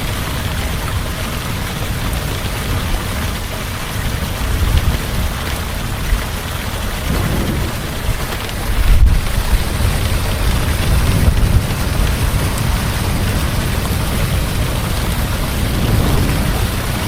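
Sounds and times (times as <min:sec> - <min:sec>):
heavy rain falling: 0:00.0 - 0:17.0
low thunder rumble: 0:06.7 - 0:17.0.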